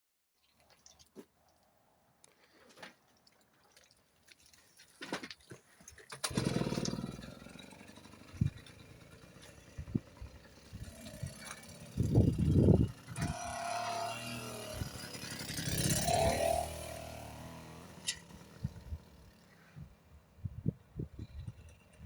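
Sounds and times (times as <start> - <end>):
motorised bicycle engine passing: 6.2 - 20.3, 21.1 - 22.0.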